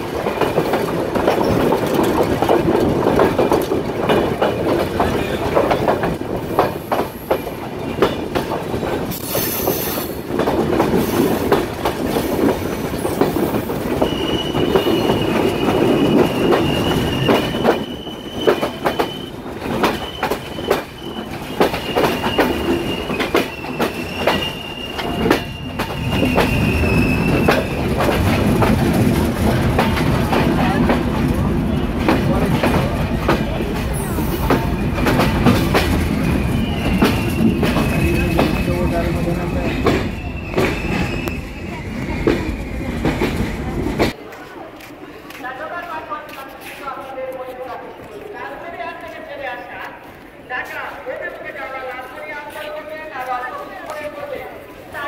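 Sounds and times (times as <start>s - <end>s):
train wheels clicking over rail joints: 0.0s - 44.2s
high wheel squeal: 13.9s - 27.9s, 36.2s - 43.0s.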